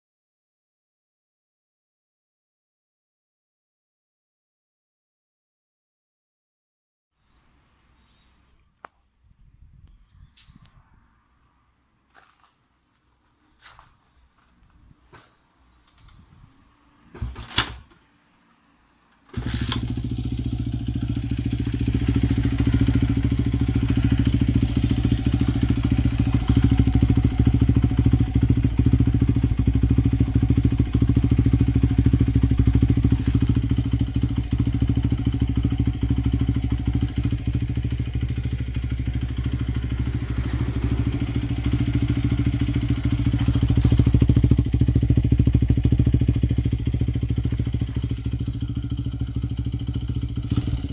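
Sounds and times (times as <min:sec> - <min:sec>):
motorcycle engine starting and idling: 0:13.2 - 0:18.2, 0:19.1 - 0:50.9.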